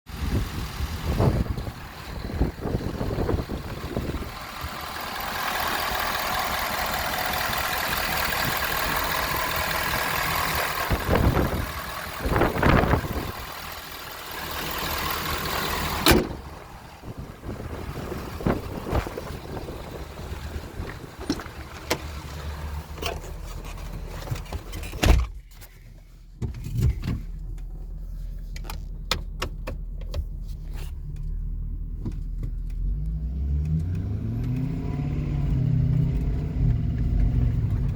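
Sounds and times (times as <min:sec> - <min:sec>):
engine revving: 0:00.1 - 0:22.9, 0:32.7 - 0:37.9
truck engine idling: 0:00.1 - 0:24.6.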